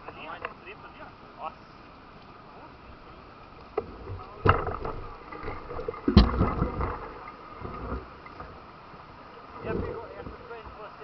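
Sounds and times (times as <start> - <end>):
water splashing and sloshing: 1.9 - 11.0
heavy thumps: 3.8 - 8.0.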